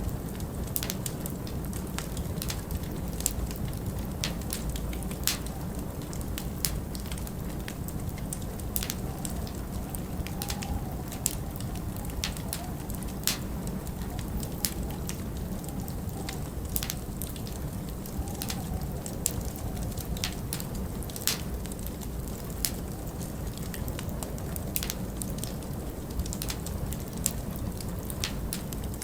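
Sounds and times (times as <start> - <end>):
wind rumbling: 0.0 - 29.0
wind whistling: 0.0 - 29.0
wood fire crackling and popping: 0.0 - 29.0.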